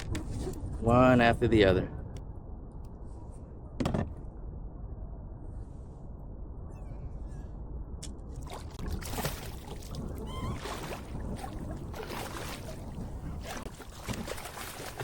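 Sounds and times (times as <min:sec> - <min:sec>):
water splashing against kayak hull: 0:08.4 - 0:15.0
short squeak: 0:10.2 - 0:10.6.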